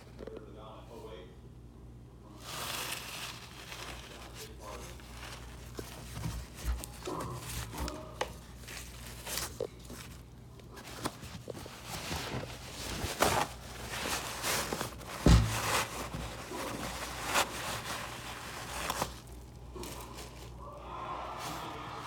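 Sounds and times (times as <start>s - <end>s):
rustling and knocks: 2.9s - 20.5s
loud thump: 15.2s - 15.8s.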